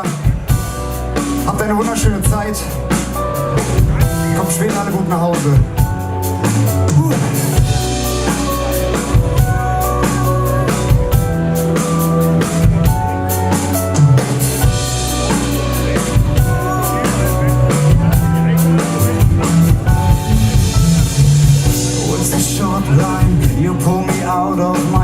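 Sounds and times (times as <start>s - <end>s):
bass guitar: 0.0s - 25.0s
drum kit beat: 0.0s - 25.0s
electric guitar: 0.0s - 25.0s
person singing: 15.1s - 25.0s.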